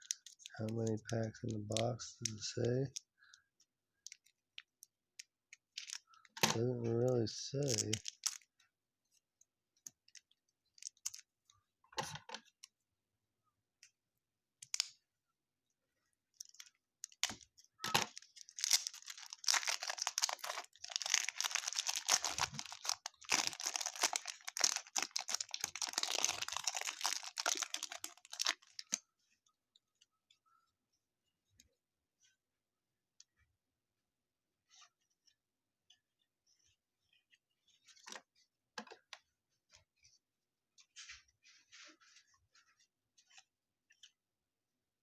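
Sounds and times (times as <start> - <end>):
wrapper crinkling and tearing: 5.6 - 6.0, 7.6 - 8.5, 10.1 - 11.2, 16.4 - 29.0.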